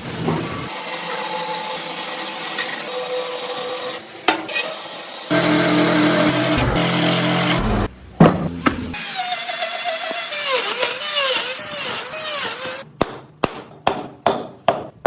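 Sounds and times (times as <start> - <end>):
small power tool motor: 4.9 - 7.9, 9.0 - 12.8.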